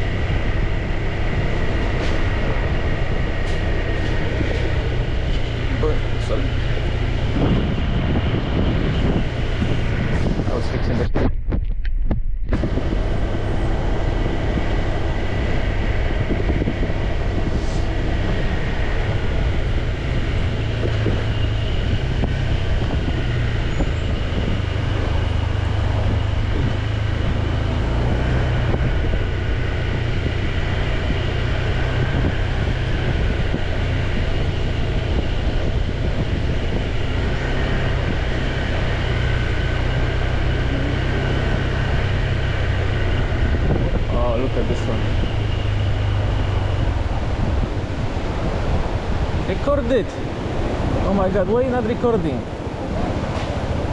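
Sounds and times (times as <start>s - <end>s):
wind buffeting microphone: 0.0s - 53.9s
motorbike engine running: 12.2s - 53.9s.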